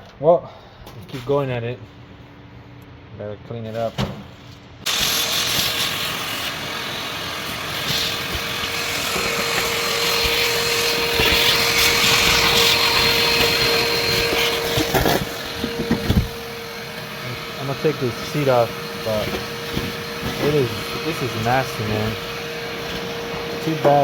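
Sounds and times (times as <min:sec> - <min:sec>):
steady whine: 0:04.4 - 0:24.0
vacuum cleaner running: 0:04.8 - 0:24.0.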